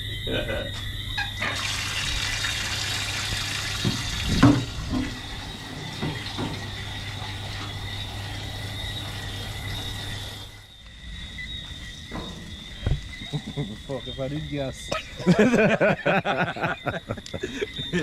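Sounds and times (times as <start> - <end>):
water running from a hose: 1.5 - 9.6.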